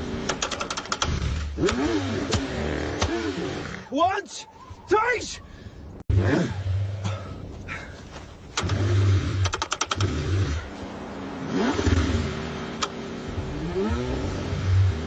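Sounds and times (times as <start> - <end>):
car engine cranking: 0.0 - 3.9, 8.4 - 10.8, 11.4 - 15.0.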